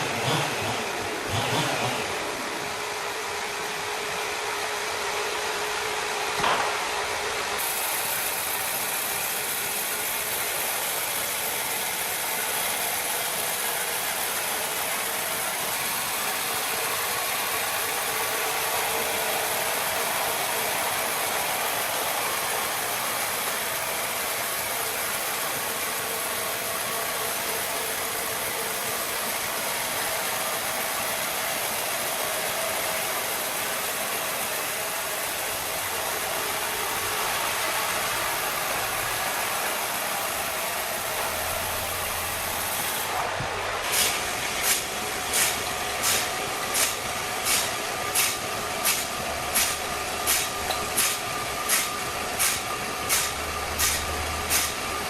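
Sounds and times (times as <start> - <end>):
machine running steadily: 0.0 - 55.0
sharp click: 44.0 - 54.7.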